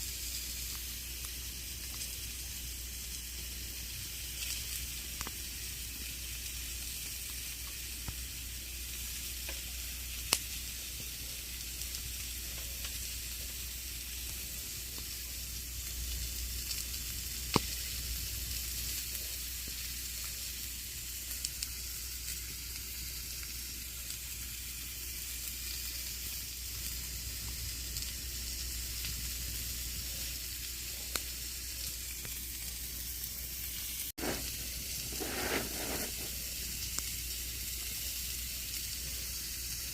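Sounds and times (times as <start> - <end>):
campfire flames hissing: 0.0 - 39.9
fire crackles and pops: 0.0 - 39.9.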